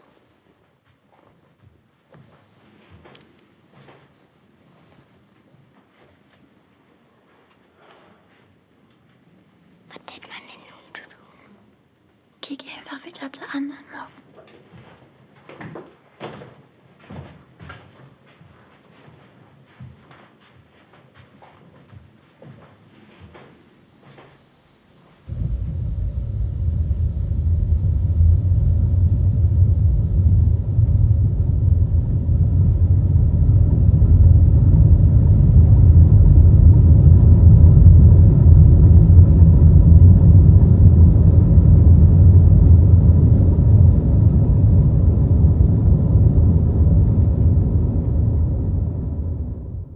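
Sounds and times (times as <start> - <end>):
deep rumbling drone: 25.3 - 49.9.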